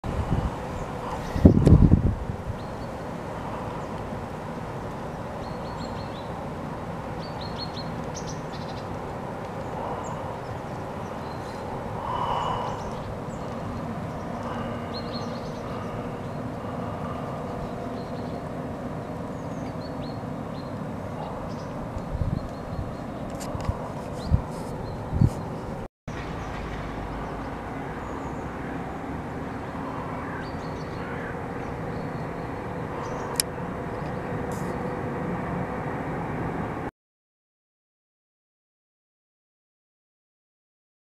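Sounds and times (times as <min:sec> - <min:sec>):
small birds chirping: 0:00.3 - 0:06.5, 0:07.1 - 0:34.9
steady low rumble: 0:08.9 - 0:30.8.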